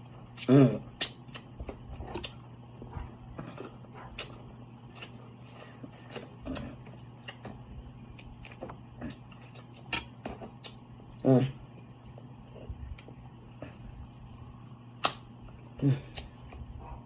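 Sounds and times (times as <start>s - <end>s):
low steady hum: 0.0s - 17.0s
chewing and mouth noises: 0.3s - 7.5s.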